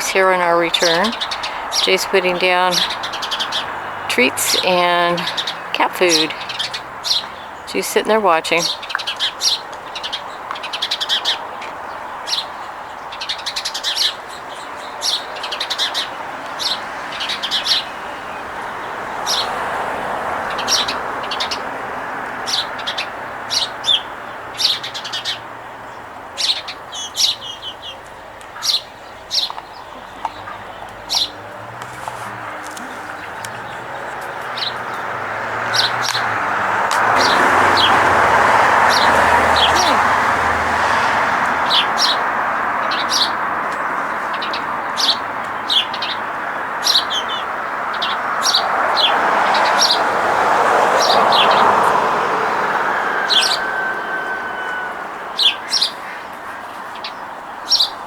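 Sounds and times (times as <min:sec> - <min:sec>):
small birds chirping: 0:00.0 - 0:50.1, 0:53.0 - 0:58.0.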